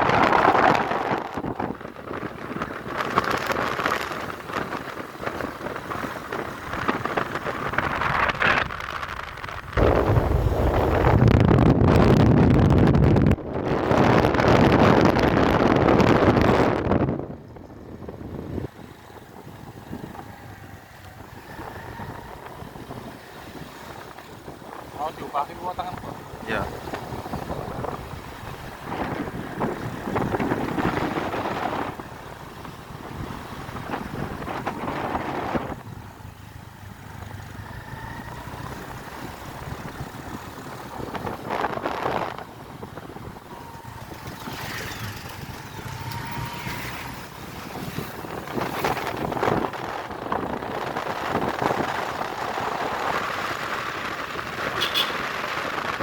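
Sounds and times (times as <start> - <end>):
wind buffeting microphone: 0.0 - 56.0
low rumble: 7.6 - 13.6
motorcycle engine running: 25.9 - 52.5.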